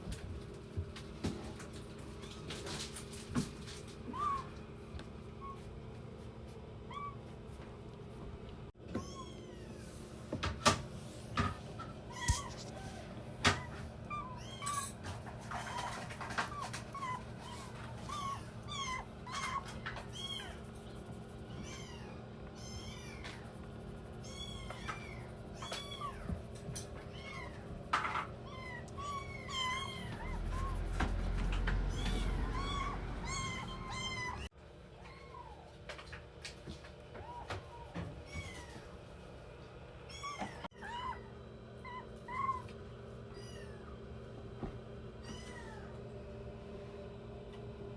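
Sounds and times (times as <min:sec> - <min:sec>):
kittens mewing: 0:12.1 - 0:23.4, 0:24.1 - 0:35.5.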